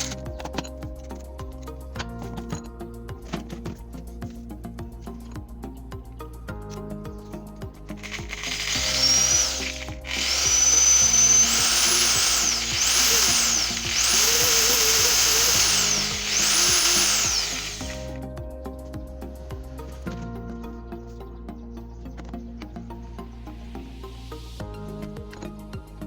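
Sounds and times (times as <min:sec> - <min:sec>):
background music: 0:00.0 - 0:26.0
polishing machine motor whining: 0:08.0 - 0:18.2.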